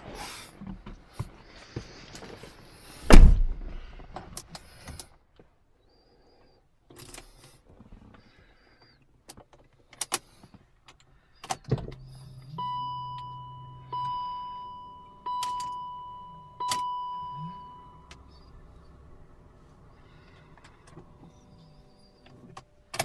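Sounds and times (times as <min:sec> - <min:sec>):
low hum: 0:11.8 - 0:22.3
car warning chime: 0:12.0 - 0:18.5
ignition key clicks: 0:15.2 - 0:16.0, 0:16.6 - 0:18.2.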